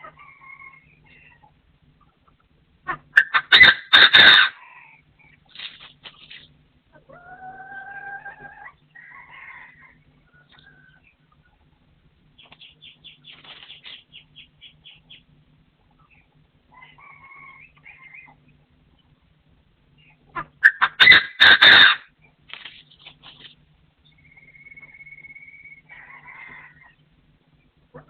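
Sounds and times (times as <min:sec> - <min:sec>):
bird clucking: 0:00.0 - 0:11.7, 0:12.4 - 0:15.3, 0:15.9 - 0:18.5, 0:20.0 - 0:22.1.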